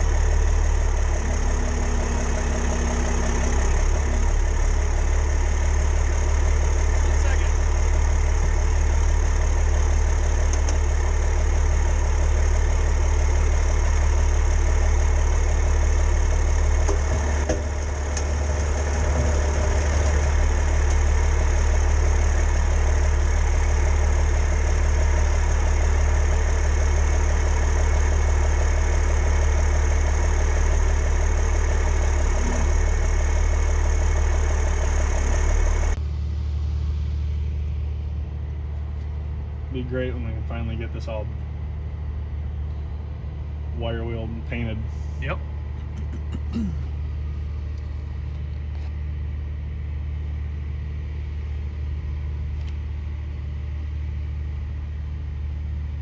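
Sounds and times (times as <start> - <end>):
machine motor humming: 0.0 - 7.7, 32.1 - 36.0.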